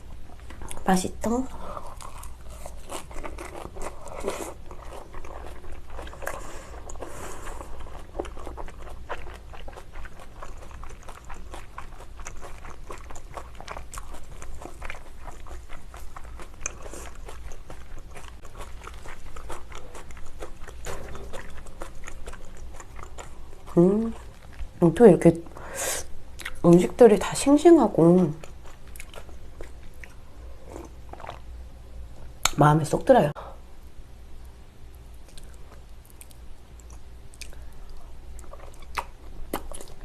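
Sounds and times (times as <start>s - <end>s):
person chewing with mouth clicks: 1.8s - 24.7s, 26.4s - 26.7s, 35.2s - 40.0s.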